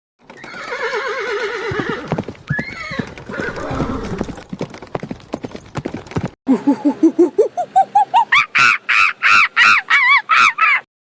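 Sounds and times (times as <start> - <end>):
horse whinnying: 0.4 - 4.4.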